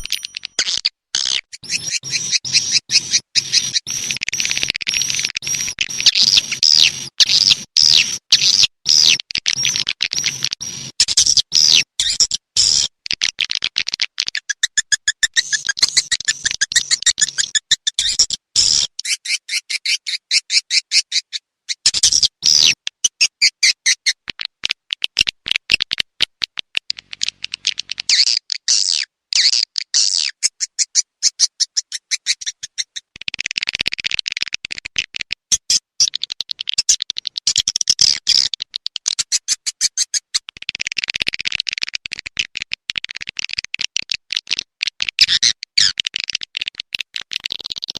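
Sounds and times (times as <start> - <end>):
swiftlets twittering and clicking: 0.0 - 8.2.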